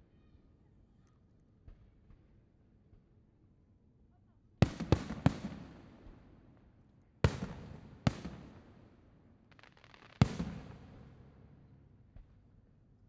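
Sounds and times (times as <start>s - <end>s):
faint fireworks crackle: 4.6s - 6.4s, 7.2s - 12.9s.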